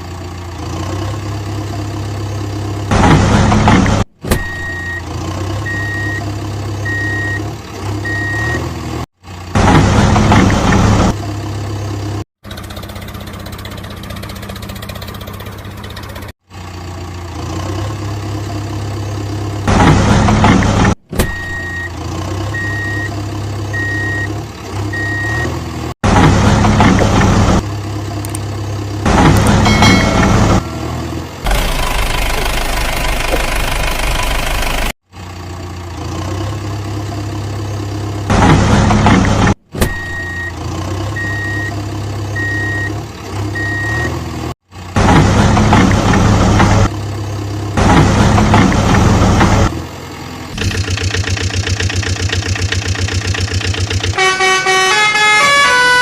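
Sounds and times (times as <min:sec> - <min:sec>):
reversing beeps: 0:04.4 - 0:06.2, 0:06.8 - 0:07.4, 0:08.0 - 0:08.7, 0:21.3 - 0:24.3, 0:24.9 - 0:25.5, 0:39.9 - 0:40.6, 0:41.2 - 0:41.8, 0:42.4 - 0:43.0, 0:43.6 - 0:44.1
cartoon vehicle engine running: 0:09.3 - 0:25.2, 0:26.0 - 0:43.6, 0:44.8 - 0:54.8.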